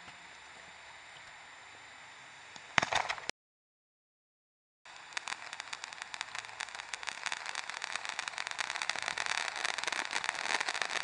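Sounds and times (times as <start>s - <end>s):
fireworks crackling: 4.9s - 11.0s.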